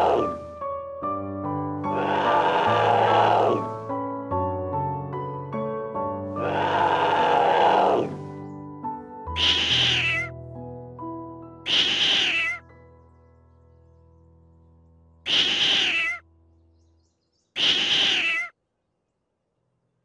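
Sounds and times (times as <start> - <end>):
cat meowing: 9.4 - 10.3, 11.7 - 12.6, 15.5 - 16.2, 17.6 - 18.5.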